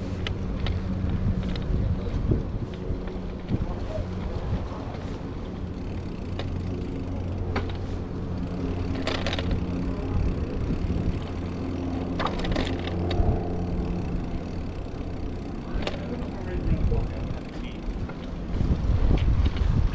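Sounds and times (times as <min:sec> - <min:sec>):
vehicle engine humming: 0:00.0 - 0:19.6
sharp clicks or rattles: 0:05.6 - 0:18.6.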